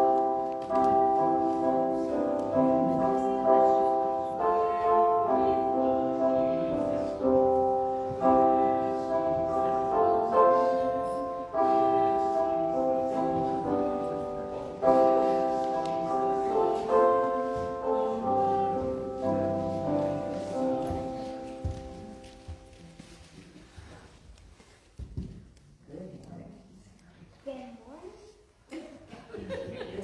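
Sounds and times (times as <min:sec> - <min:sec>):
piano playing slow chords: 0:00.0 - 0:23.0.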